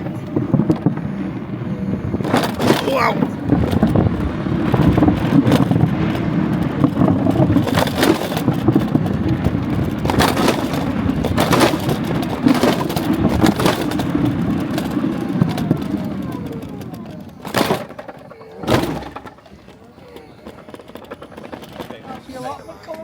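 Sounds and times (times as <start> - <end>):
rattles and knocks over bumps: 0.0 - 22.3
scooter motor drone: 0.0 - 22.6.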